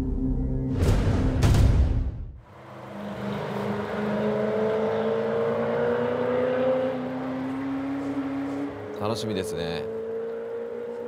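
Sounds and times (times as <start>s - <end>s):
car engine accelerating: 2.4s - 11.0s.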